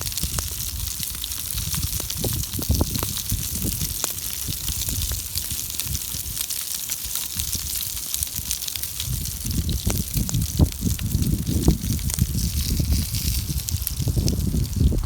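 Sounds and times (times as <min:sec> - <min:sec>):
wind buffeting microphone: 0:00.0 - 0:05.2, 0:09.0 - 0:15.0
campfire crackling: 0:00.0 - 0:15.0.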